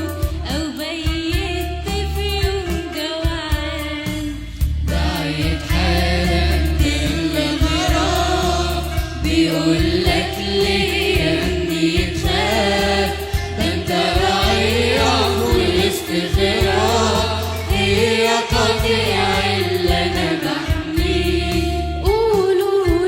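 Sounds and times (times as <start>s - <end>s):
instrumental backing: 0.0s - 23.0s
choir singing a hymn: 4.9s - 22.1s.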